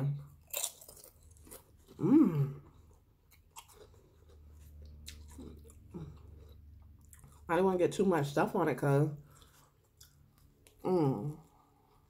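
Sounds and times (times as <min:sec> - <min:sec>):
person chewing food: 0:00.2 - 0:07.5, 0:09.2 - 0:12.0
person humming mm: 0:02.0 - 0:02.6.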